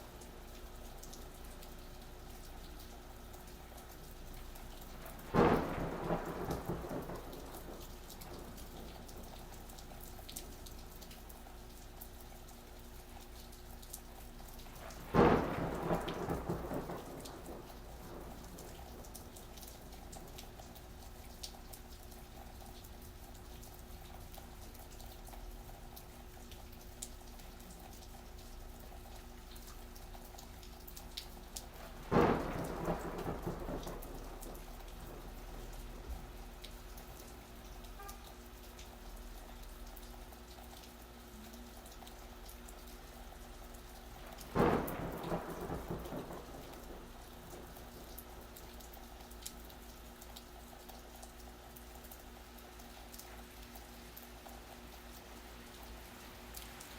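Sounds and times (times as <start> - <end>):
steady rain: 0.0 - 56.9
thunderclaps: 4.9 - 9.8, 14.7 - 21.1, 31.4 - 36.4, 44.2 - 49.0.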